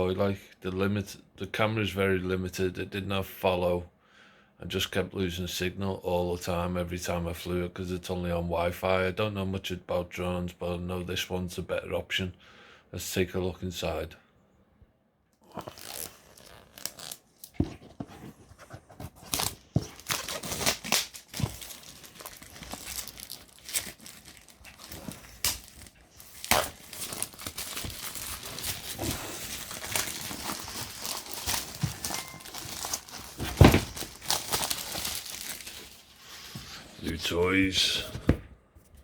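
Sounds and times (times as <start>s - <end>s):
packaging crackling and rustling: 15.5s - 37.2s.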